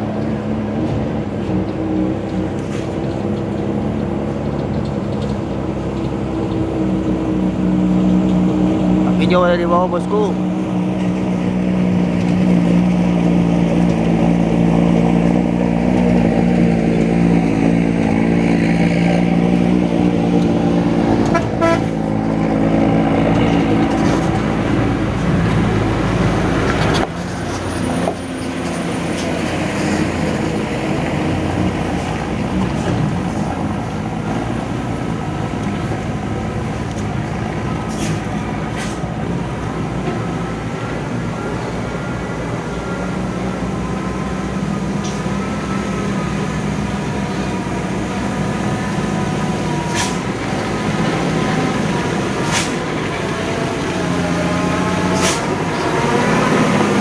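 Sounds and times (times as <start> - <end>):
diesel truck engine droning: 0.0 - 57.0.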